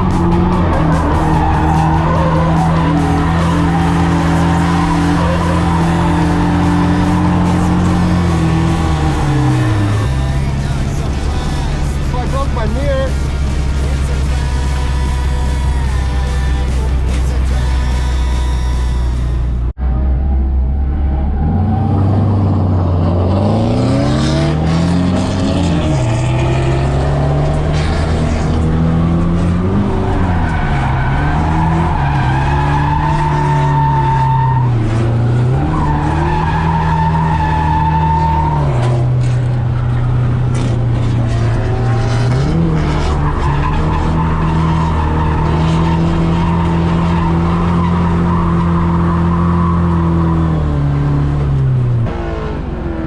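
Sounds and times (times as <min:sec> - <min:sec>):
tyres squealing: 0:00.0 - 0:19.7
car engine revving: 0:00.0 - 0:53.0.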